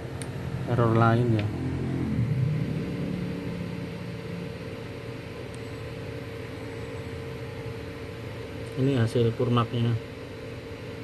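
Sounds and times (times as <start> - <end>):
low hum tone: 0.0 - 8.0
computer fans whirring: 0.0 - 11.0.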